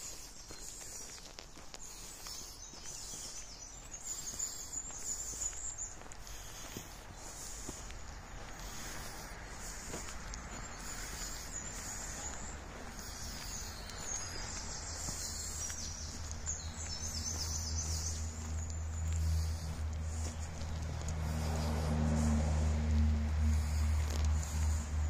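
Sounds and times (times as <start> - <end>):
small birds singing: 0.0 - 25.0
steady outdoor hiss: 0.0 - 25.0.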